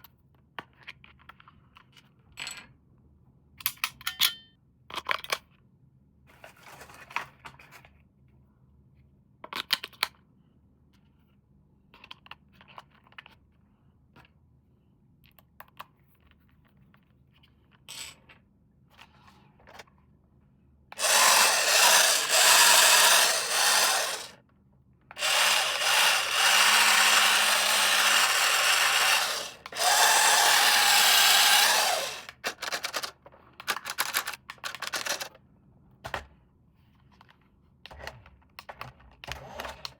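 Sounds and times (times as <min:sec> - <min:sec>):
small motor whirring: 0:21.0 - 0:24.4, 0:25.2 - 0:32.4.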